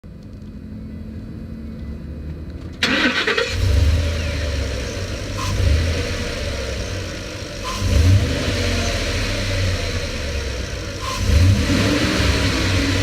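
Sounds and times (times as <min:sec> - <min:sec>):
pickup engine starting: 0:02.6 - 0:13.0.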